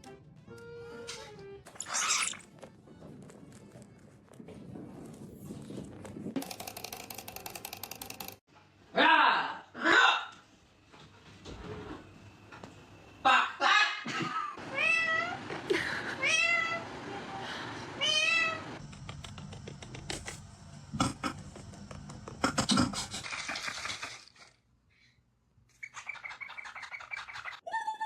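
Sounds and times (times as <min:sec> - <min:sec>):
clicking and rattling: 0:06.4 - 0:08.4
rapid chirping: 0:25.8 - 0:27.6.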